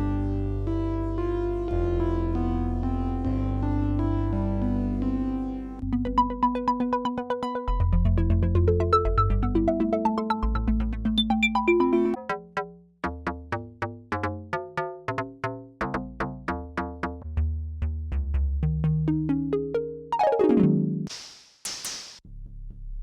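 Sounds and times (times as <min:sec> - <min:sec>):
held synth bass notes: 0:00.0 - 0:12.2, 0:16.4 - 0:21.1.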